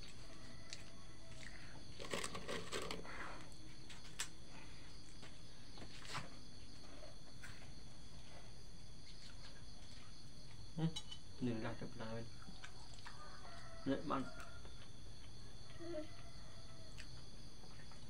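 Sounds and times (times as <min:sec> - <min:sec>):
insects chirping: 0:00.0 - 0:18.0
person eating crunches: 0:00.7 - 0:03.1.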